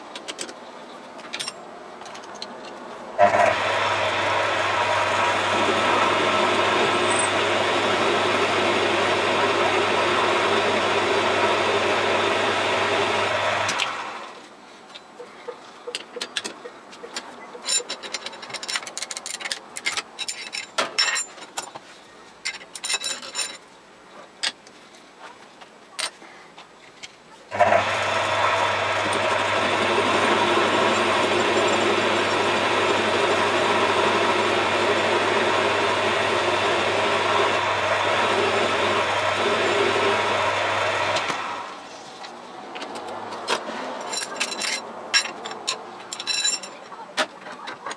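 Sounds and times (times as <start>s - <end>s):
metal tools clinking: 1.3s - 2.8s, 17.6s - 21.8s, 22.4s - 23.6s, 44.0s - 47.0s
lathe motor starting thump: 3.2s - 14.2s, 27.6s - 41.8s
lathe motor humming: 3.2s - 14.3s, 27.5s - 41.8s.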